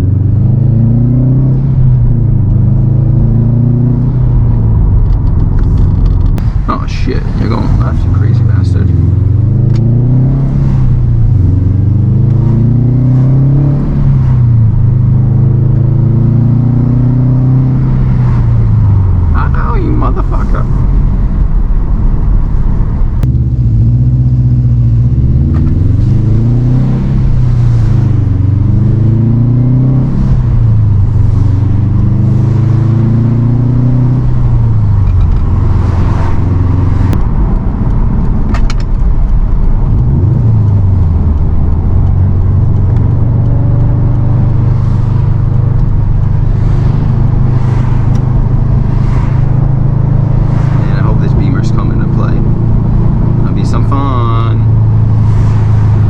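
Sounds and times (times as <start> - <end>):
car engine revving: 0.0 - 56.0
road noise: 0.0 - 56.0.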